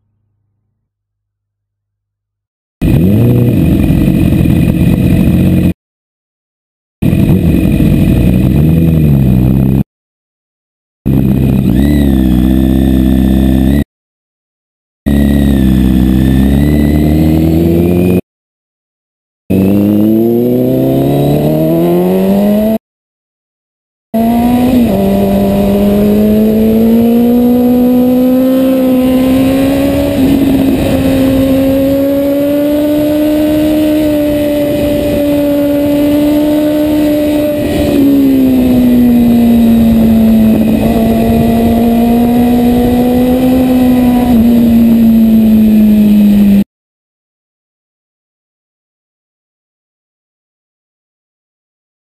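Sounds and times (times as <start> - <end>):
motorcycle engine revving: 2.8 - 5.8, 7.0 - 9.8, 11.1 - 13.9, 15.1 - 18.2, 19.5 - 22.8, 24.2 - 46.6.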